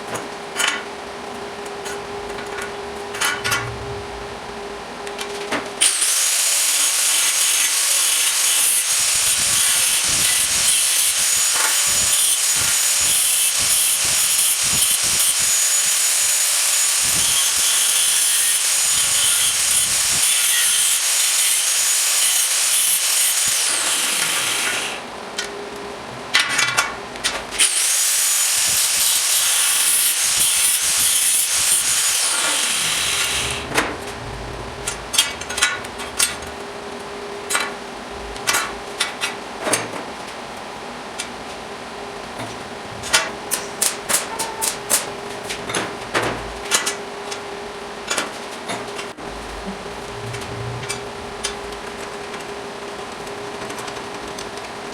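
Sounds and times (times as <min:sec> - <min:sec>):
power tool whining on metal: 0:05.8 - 0:25.1, 0:27.6 - 0:33.9.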